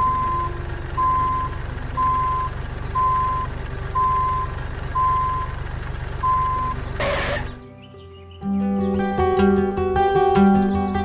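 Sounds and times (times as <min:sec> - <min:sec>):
reversing alarm beeping: 0:00.0 - 0:05.6, 0:06.2 - 0:07.6
low engine hum: 0:00.0 - 0:11.0.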